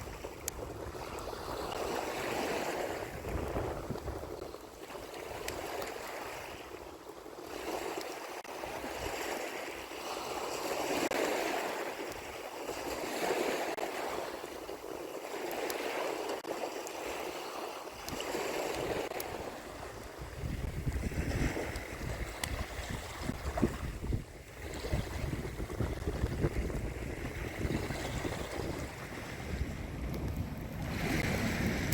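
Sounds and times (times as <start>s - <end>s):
small waves washing onto beach: 0.0s - 31.9s.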